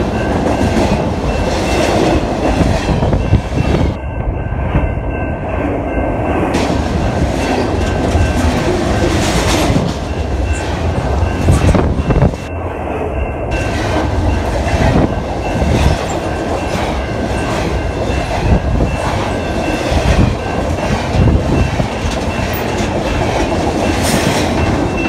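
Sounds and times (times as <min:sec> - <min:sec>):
freight train rumbling past: 0:00.0 - 0:25.0
wheels clicking over rail joints: 0:15.6 - 0:25.0.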